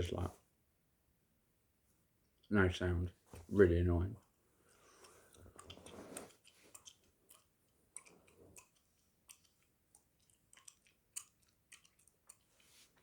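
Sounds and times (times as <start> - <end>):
gum chewing mouth smacks: 5.0 - 12.8.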